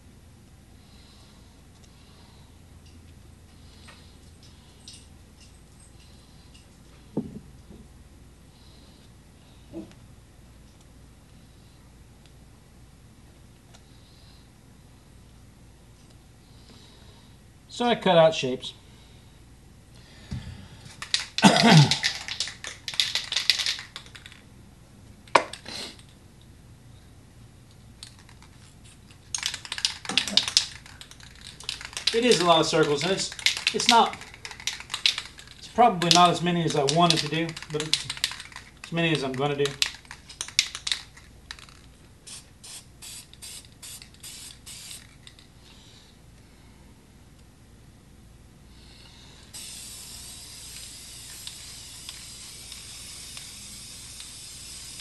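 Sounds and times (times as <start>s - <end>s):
sharp clicks: 29.3s - 41.8s
spray can hissing bursts: 29.4s - 45.2s, 49.5s - 55.0s.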